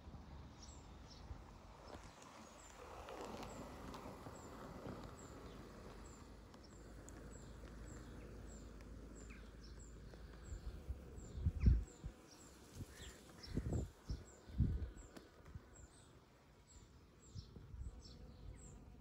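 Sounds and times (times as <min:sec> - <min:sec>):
small birds chirping: 0:00.5 - 0:19.0.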